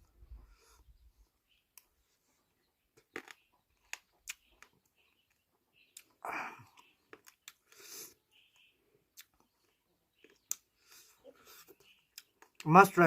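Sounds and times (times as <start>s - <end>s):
person chewing crunchy food: 3.0s - 12.6s.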